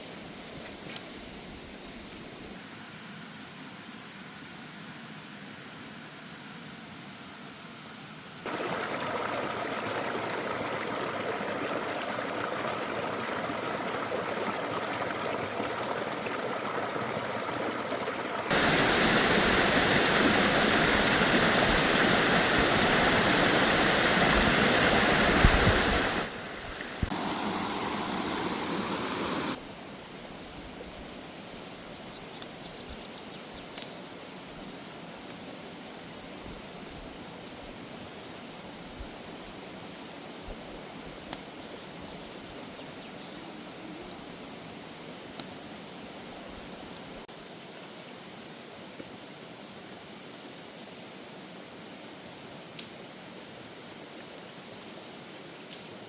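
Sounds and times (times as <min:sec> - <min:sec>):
rushing water: 0:08.4 - 0:32.5.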